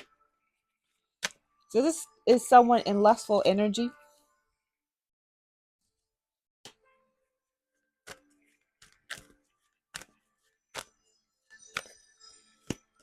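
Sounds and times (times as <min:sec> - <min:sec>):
cards sliding: 0:08.8 - 0:09.4.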